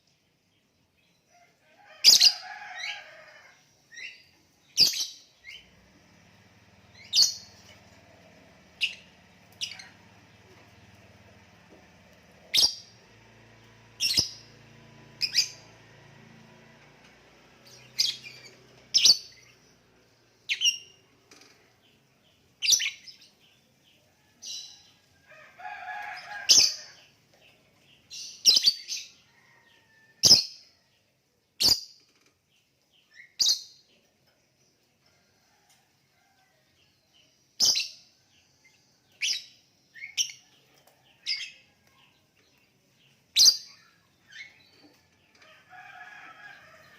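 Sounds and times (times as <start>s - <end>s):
lovebird chirping: 3.9s - 5.7s, 17.8s - 19.6s, 20.5s - 21.0s, 22.6s - 23.4s, 28.1s - 29.1s, 37.6s - 38.1s, 39.2s - 40.4s, 43.3s - 44.7s.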